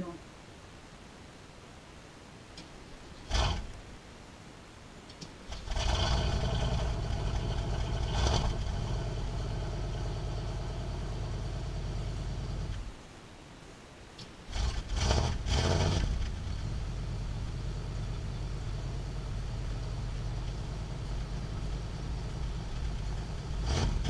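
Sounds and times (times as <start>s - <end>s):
car engine starting and idling: 5.5s - 12.9s, 14.5s - 24.0s.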